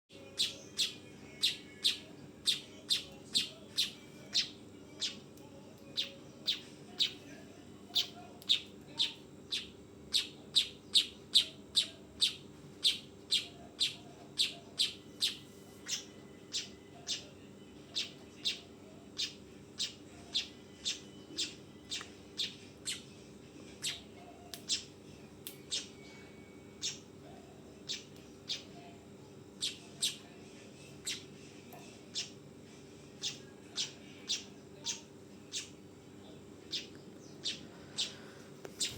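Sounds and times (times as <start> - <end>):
faint steady hum: 0.1 - 38.9
weaver bird chip call: 0.4 - 5.2, 7.9 - 17.2.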